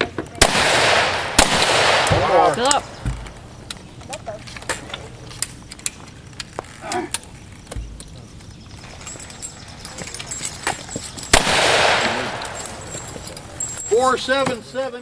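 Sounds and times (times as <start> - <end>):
gunshot with echo: 0.4 - 2.5, 11.3 - 12.5.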